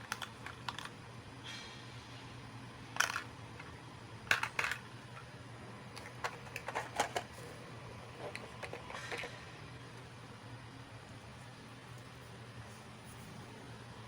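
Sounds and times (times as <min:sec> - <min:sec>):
plastic toy pieces clicking: 0:00.0 - 0:00.9, 0:03.0 - 0:03.3, 0:04.3 - 0:04.8.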